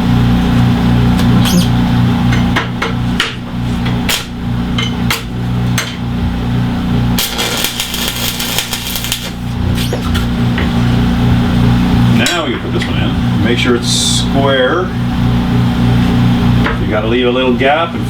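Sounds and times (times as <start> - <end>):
low hum: 6.1 - 16.7
burst of harsh noise: 7.2 - 9.5.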